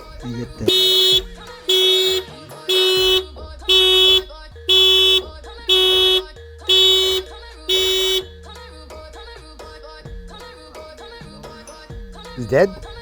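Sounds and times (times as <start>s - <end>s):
car horn blasts: 0.5s - 8.3s.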